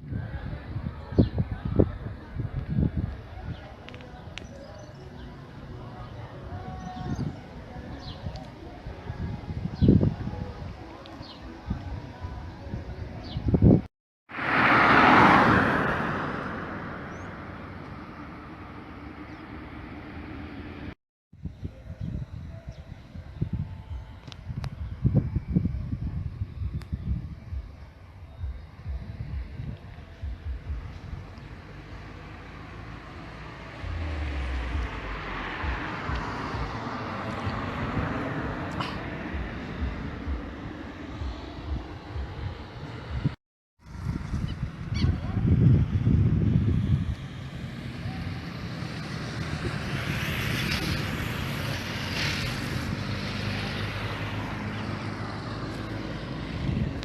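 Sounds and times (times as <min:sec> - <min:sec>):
wind gusts buffeting microphone: 0:00.0 - 0:03.8, 0:06.4 - 0:10.9, 0:11.6 - 0:13.9, 0:21.4 - 0:31.4, 0:33.8 - 0:57.0
storm wind rushing: 0:33.8 - 0:47.9.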